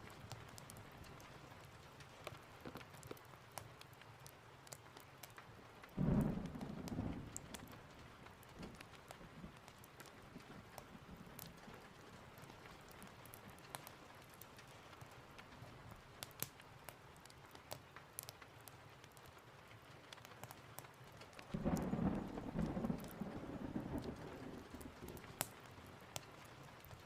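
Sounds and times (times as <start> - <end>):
sharp crackles and ticks: 0.0 - 27.0
steady rain: 0.0 - 27.0
thunder rumbling: 6.0 - 9.8, 21.5 - 25.4.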